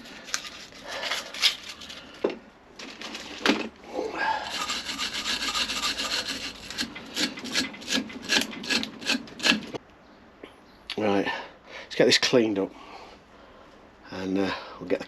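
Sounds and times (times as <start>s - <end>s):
hand tools scraping metal: 4.2s - 9.8s
quick rubbing strokes: 4.4s - 9.8s.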